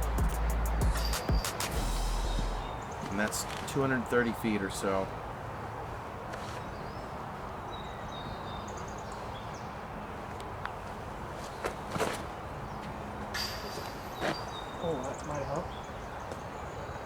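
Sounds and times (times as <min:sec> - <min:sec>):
small birds chirping: 0:06.3 - 0:17.0.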